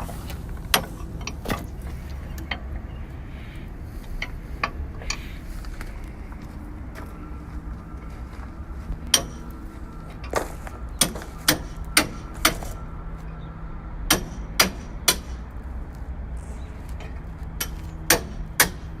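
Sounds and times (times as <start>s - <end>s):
steady low hum: 0.0s - 19.0s
hammer striking steel: 9.1s - 9.5s, 10.2s - 12.8s, 14.1s - 15.5s, 17.6s - 19.0s.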